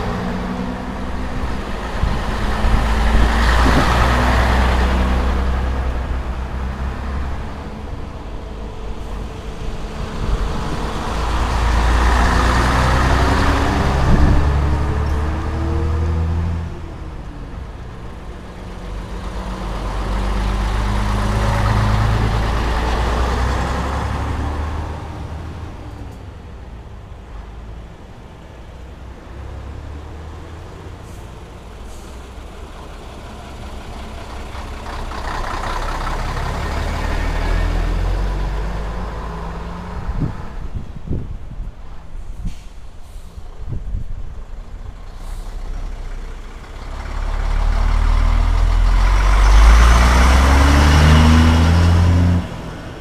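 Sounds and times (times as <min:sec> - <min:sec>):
truck diesel engines droning: 0:00.0 - 0:53.0.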